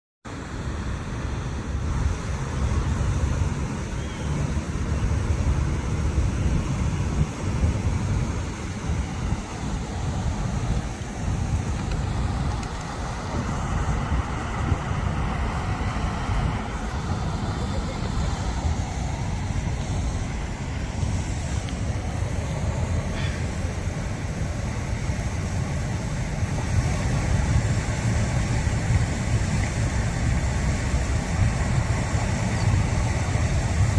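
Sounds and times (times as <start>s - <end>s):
low rumbling noise: 0.3s - 33.9s.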